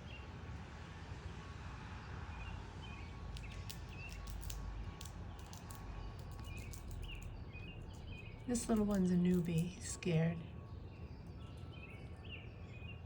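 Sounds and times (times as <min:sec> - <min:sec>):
bird chirps: 0:02.8 - 0:13.0
sharp ticks: 0:03.4 - 0:09.8.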